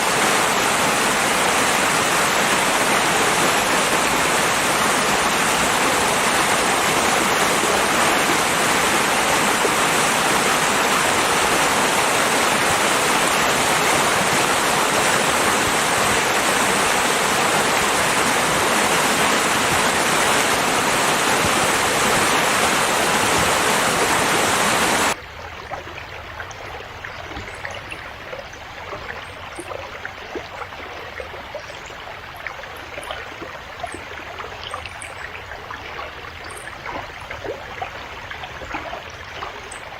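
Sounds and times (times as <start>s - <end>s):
river water rushing: 0.0s - 25.4s
trickling stream with splashes: 0.0s - 39.9s.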